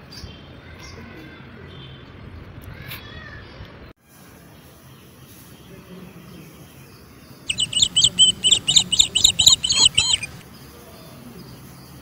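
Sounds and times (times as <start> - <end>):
bird chirping: 7.5 - 10.4.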